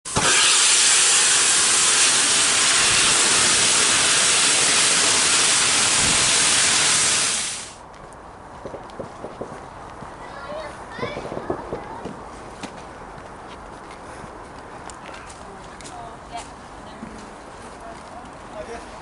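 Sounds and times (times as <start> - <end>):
steam locomotive hissing steam: 0.1 - 7.8.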